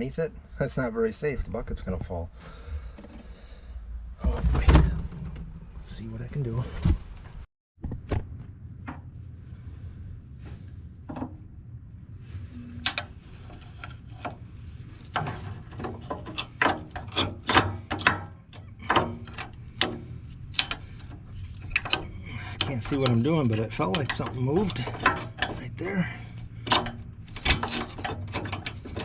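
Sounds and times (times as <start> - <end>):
steady low hum: 0.0 - 29.0
metal latch clicking and clanking: 15.2 - 29.0.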